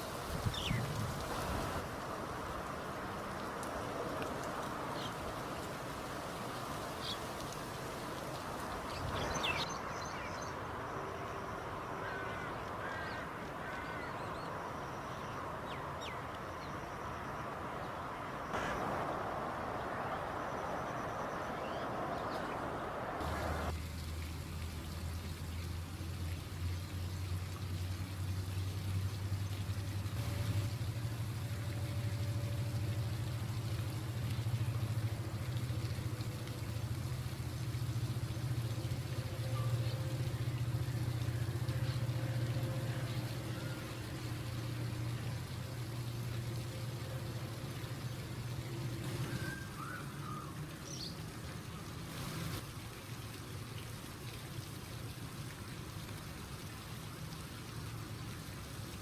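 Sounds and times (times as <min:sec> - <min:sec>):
background hiss: 0:00.0 - 0:59.0
birds chirping: 0:00.4 - 0:01.0, 0:08.6 - 0:23.7.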